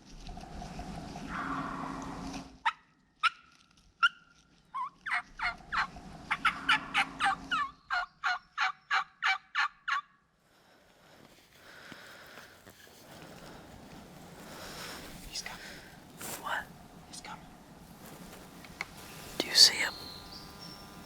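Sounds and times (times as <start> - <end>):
turkey call clucks and yelps: 4.8 - 10.1
footsteps in dry leaves: 11.3 - 20.7.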